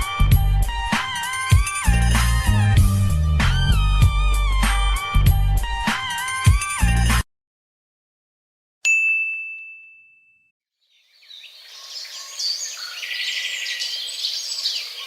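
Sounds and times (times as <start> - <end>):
bright bell-like ding: 8.9 - 10.5
birds chirping: 10.8 - 15.0.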